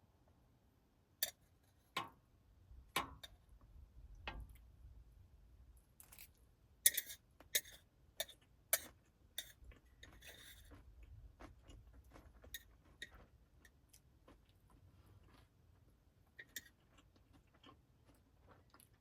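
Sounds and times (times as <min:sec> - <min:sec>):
small objects clicking and tapping: 0:03.0 - 0:03.4, 0:06.0 - 0:14.4.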